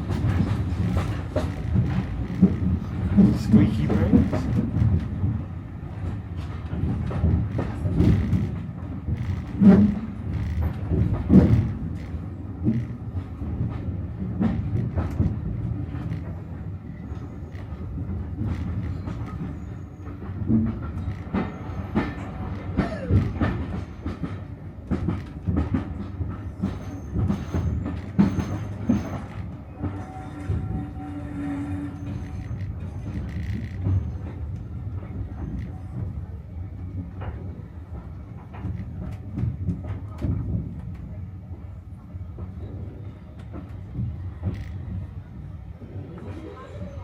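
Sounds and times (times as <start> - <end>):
wheels clicking over rail joints: 0.0 - 36.3
train carriage rumble: 0.0 - 47.0
faint high squeal: 29.8 - 34.4.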